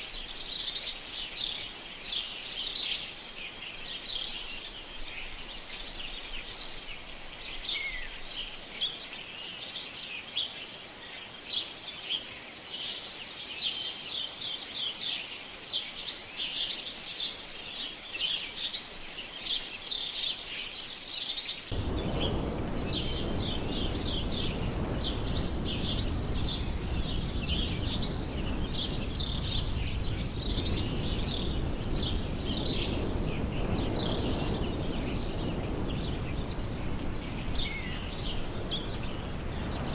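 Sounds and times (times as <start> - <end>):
low rushing noise: 21.7 - 39.9.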